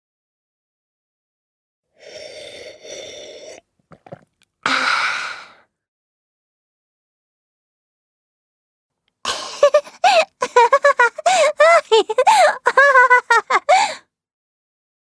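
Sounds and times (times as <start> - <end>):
person exhaling breathily: 2.0 - 3.6, 4.7 - 5.7, 13.7 - 14.0
person sighing or gasping: 2.0 - 5.7, 9.3 - 10.4, 11.2 - 12.6, 13.6 - 14.1
small mouth clicks: 2.1 - 4.5.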